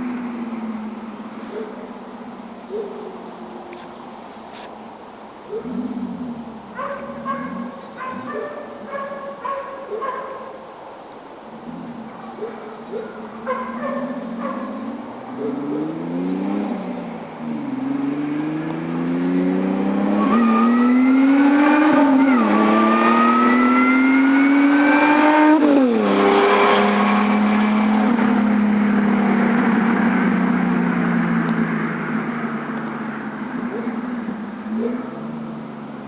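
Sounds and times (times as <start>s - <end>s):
truck engine accelerating: 14.4s - 36.0s.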